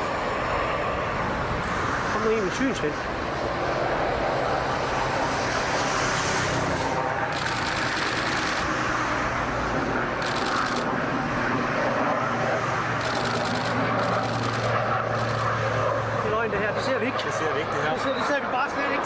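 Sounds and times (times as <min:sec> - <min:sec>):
aircraft engines running: 0:00.0 - 0:19.0.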